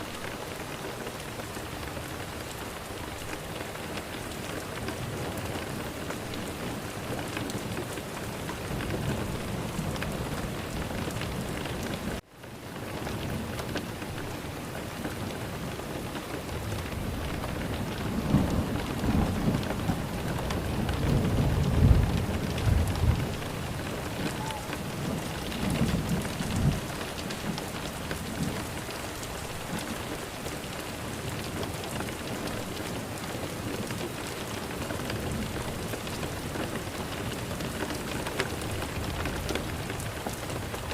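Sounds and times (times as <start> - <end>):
steady rain: 0.0 - 40.9
thunder rumbling: 16.4 - 30.0.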